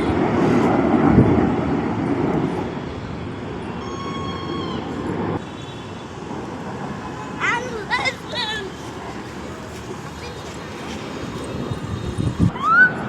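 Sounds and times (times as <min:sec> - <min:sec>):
aircraft flying overhead roar: 0:00.0 - 0:13.0.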